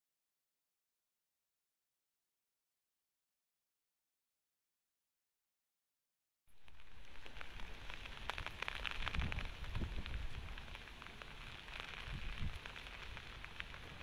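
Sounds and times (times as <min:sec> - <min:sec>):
rain drops on wet paving: 0:06.5 - 0:14.0
wind rumble on microphone: 0:06.6 - 0:14.0.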